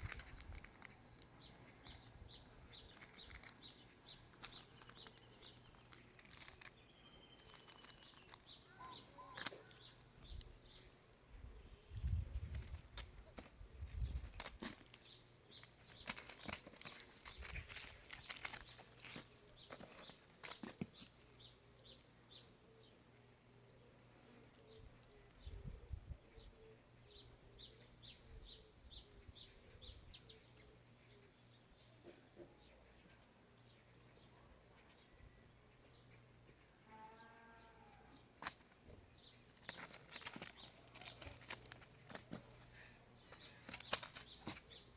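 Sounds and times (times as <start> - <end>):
small birds chirping: 0.0 - 44.9
faint bird chirps: 0.5 - 12.2.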